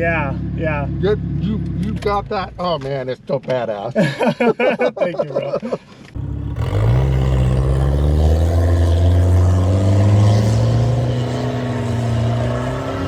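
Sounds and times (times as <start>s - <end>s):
car engine pulling hard: 6.2s - 13.0s.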